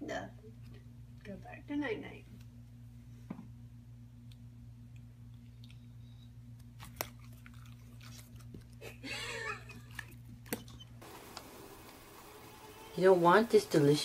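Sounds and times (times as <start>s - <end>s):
steady low hum: 0.0s - 14.0s
pet chewing: 6.6s - 8.9s.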